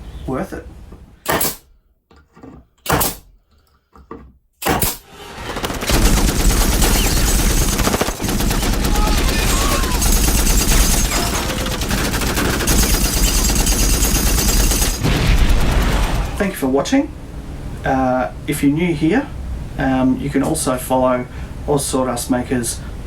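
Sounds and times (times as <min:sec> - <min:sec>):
rapid machine-gun fire: 0:04.7 - 0:16.6.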